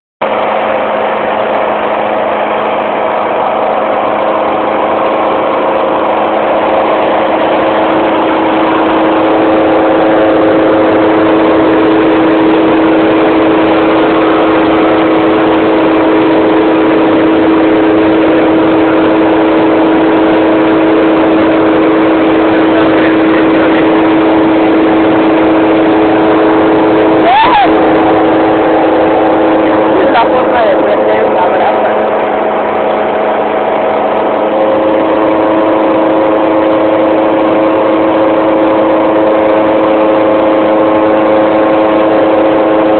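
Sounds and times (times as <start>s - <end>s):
motor humming: 0.2s - 42.9s.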